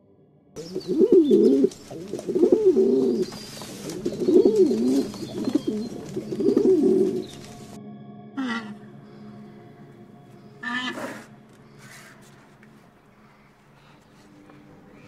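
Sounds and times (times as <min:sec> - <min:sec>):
pigeon cooing: 0:00.6 - 0:07.8, 0:08.4 - 0:08.8, 0:10.6 - 0:12.4.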